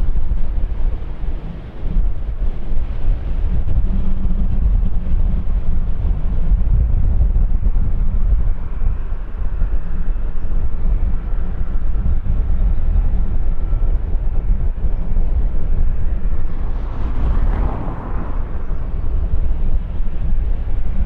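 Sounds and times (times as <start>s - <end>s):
jet airliner engines rumbling: 0.0s - 21.0s
faint thin whine: 7.2s - 21.0s.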